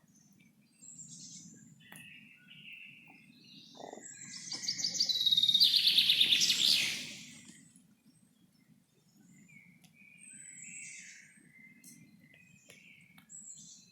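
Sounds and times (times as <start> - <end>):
bird chirps: 0.8 - 7.7
rapid bird trill: 3.8 - 7.3.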